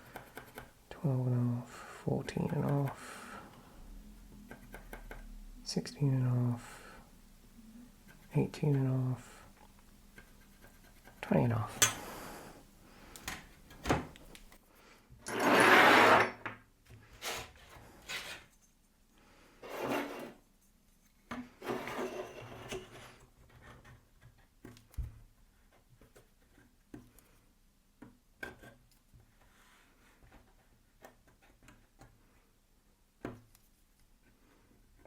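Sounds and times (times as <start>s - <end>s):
wood scraping on wood: 15.3s - 16.4s.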